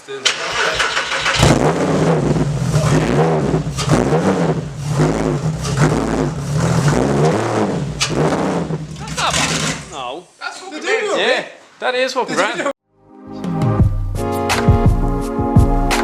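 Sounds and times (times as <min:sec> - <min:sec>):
car engine revving: 0:00.3 - 0:10.0.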